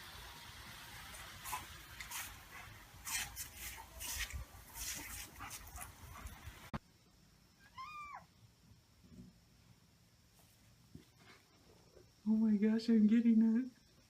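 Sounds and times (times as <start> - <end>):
rustling noise: 1.0 - 6.8.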